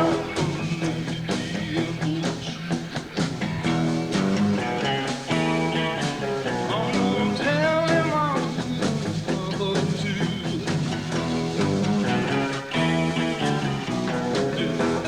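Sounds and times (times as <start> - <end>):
electric guitar note bending: 0.0 - 1.1
live blues-rock band playing: 0.0 - 15.0.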